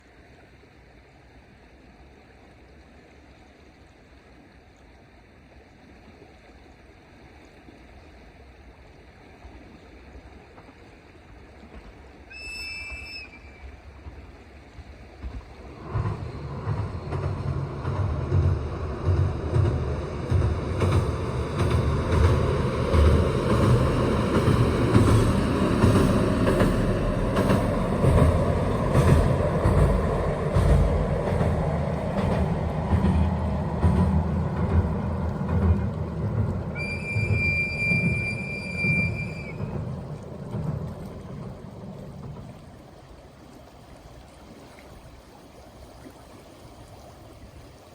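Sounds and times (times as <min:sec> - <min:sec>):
train rumbling on bridge: 0:10.4 - 0:44.1
train horn blast: 0:36.7 - 0:40.0.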